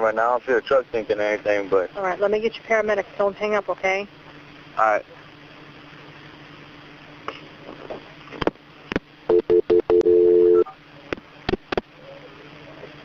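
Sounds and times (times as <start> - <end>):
short telephone beeps: 9.3 - 10.7
two-note dial tone: 9.3 - 10.7.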